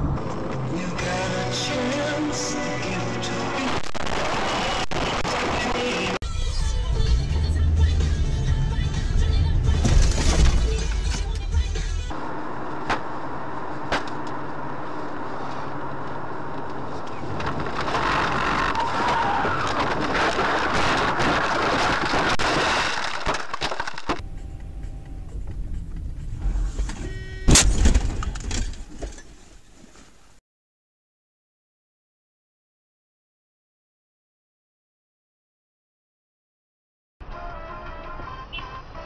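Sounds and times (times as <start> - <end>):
car engine and road noise: 0.0 - 30.4, 37.2 - 39.0
loud bang: 27.4 - 28.5.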